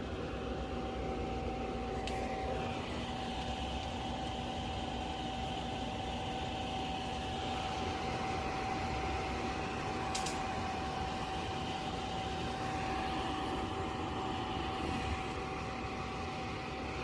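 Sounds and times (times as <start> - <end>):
air conditioner fan rushing: 0.0 - 17.0.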